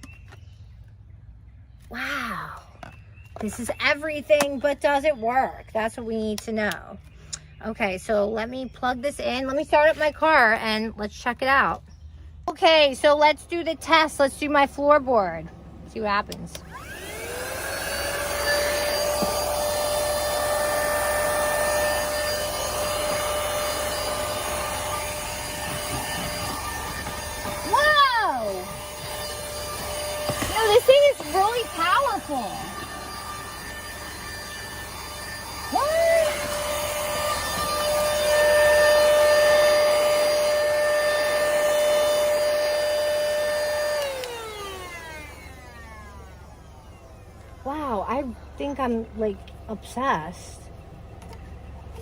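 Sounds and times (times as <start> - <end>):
handheld vacuum cleaner running: 16.5 - 48.8.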